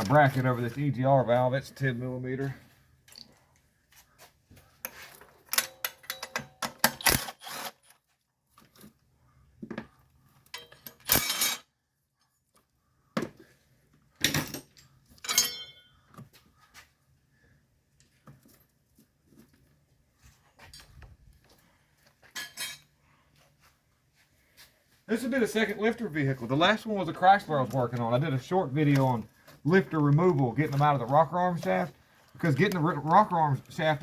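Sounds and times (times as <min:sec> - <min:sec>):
metal tools clinking on engine: 0:04.9 - 0:07.9, 0:10.5 - 0:11.7, 0:14.2 - 0:15.9, 0:22.4 - 0:22.9.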